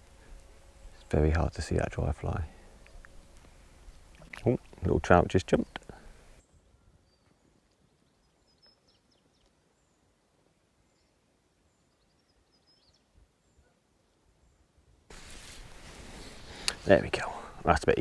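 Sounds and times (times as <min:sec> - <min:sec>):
faint bird chirps: 0:05.5 - 0:10.1, 0:10.8 - 0:14.7.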